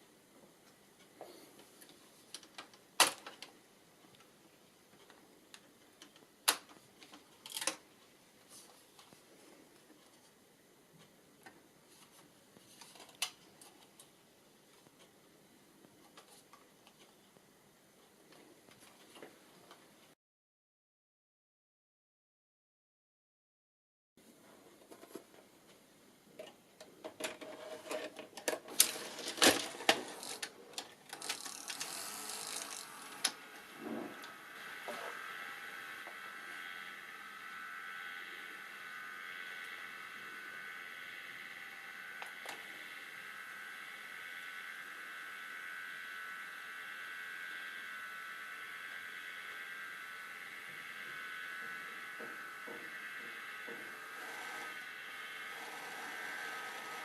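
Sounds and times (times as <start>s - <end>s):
video recorder mechanism clicking: 2.4s - 3.5s, 27.1s - 36.8s
high-pitched electrical whine: 28.7s - 57.0s
motor whirring: 28.7s - 57.0s.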